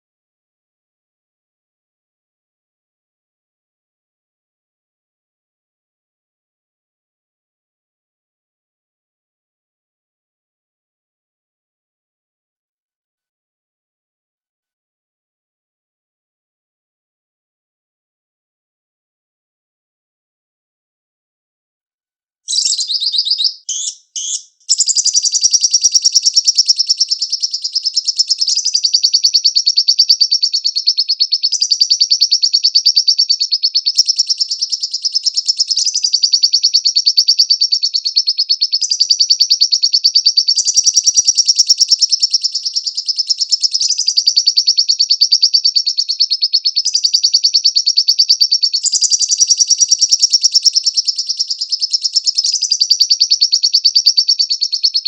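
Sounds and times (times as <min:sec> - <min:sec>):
lovebird chattering trill: 0:22.5 - 0:55.0.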